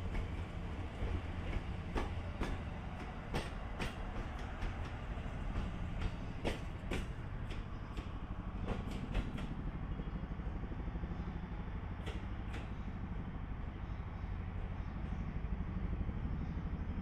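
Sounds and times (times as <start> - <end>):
wheels clicking over rail joints: 0.0 - 10.8, 11.7 - 13.3
train low rumble: 0.0 - 17.0.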